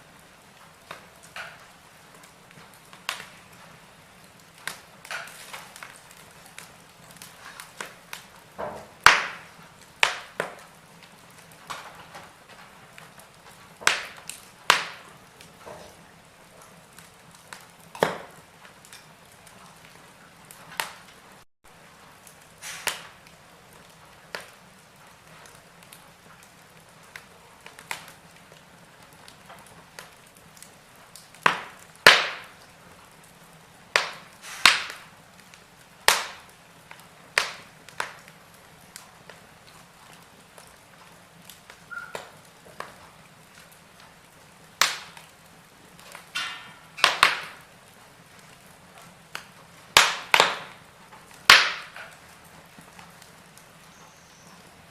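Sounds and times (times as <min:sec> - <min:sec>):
soft steady fire hiss: 0:00.0 - 0:54.9
wood fire crackling and popping: 0:00.0 - 0:54.9.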